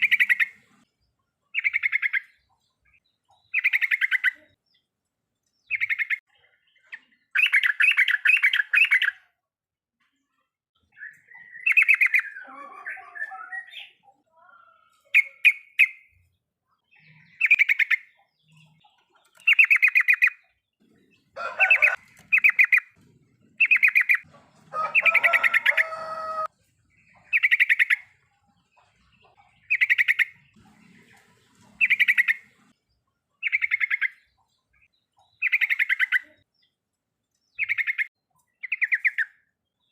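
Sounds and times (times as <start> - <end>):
bird chattering song: 0.0 - 9.4, 10.2 - 39.9.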